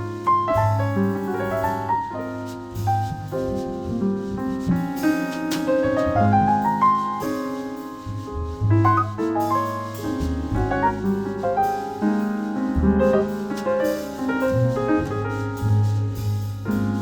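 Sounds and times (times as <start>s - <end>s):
jazz quartet playing a ballad: 0.0s - 17.0s
piano chords: 0.0s - 17.0s
low bass notes: 2.5s - 7.0s, 8.0s - 17.0s.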